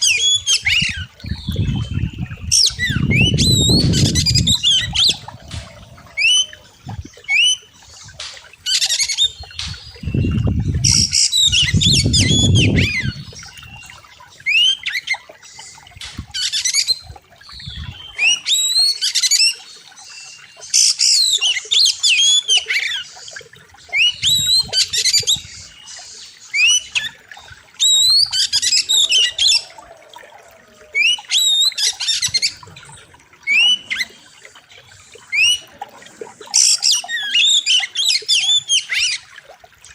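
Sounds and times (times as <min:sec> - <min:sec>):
bird singing whistled notes: 0:09.1 - 0:14.8.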